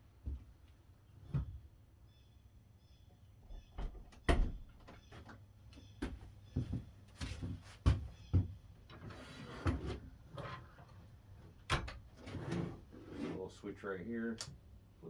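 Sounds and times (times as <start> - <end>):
rustling scrape: 12.2 - 13.6.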